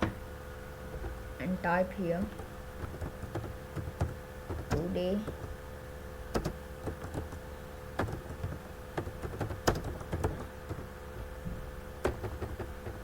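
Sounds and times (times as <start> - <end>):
faint steady hum: 0.0 - 13.0
keyboard keys clicking: 2.3 - 5.6, 6.3 - 7.4, 8.0 - 10.9, 12.0 - 13.0.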